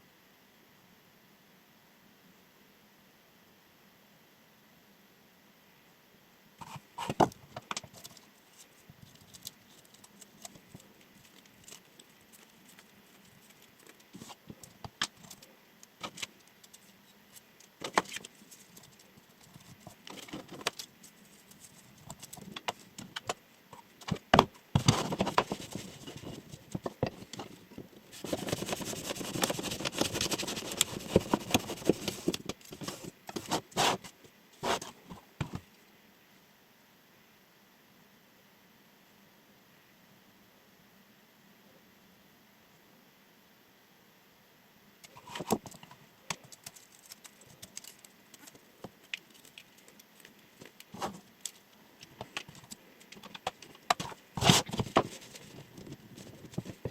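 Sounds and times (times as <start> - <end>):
crackling rustle: 6.6 - 35.9, 45.0 - 56.9.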